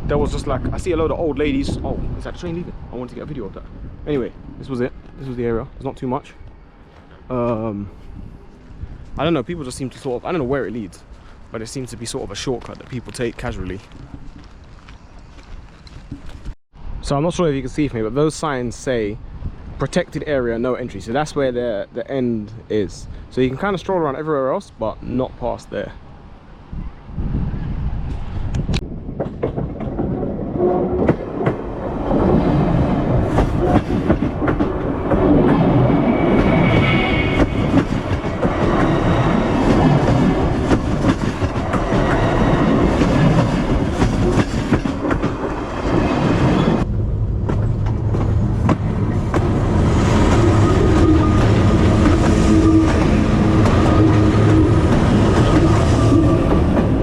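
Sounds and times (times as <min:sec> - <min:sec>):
train wheels clicking over rail joints: 0:30.9 - 0:57.0
low drone: 0:46.5 - 0:57.0.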